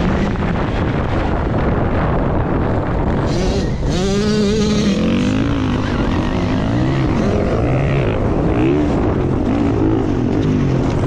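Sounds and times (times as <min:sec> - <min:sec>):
heavy wind noise: 0:00.0 - 0:11.0
dirt bike motor revving: 0:03.2 - 0:10.4.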